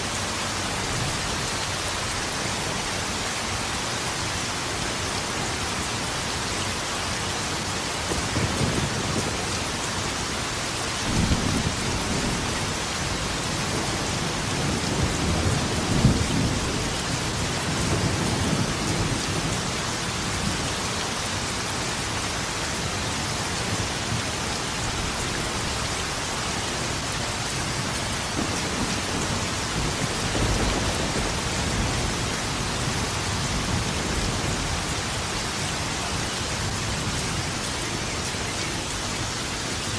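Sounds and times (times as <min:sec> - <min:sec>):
heavy rain: 0:00.0 - 0:39.9
thunder rumbling: 0:07.9 - 0:19.7, 0:24.8 - 0:39.2.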